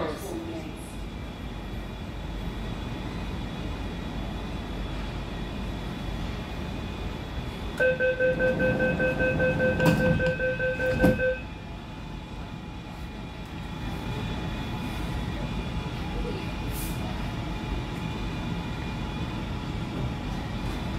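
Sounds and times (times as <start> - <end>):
train carriage hum: 0.0 - 20.9
rapid pulsing warning beep: 7.8 - 11.5
train doors knocking shut: 9.6 - 11.4.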